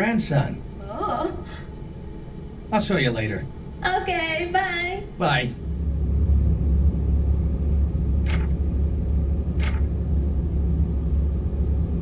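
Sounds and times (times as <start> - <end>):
low rumble: 5.0 - 12.0.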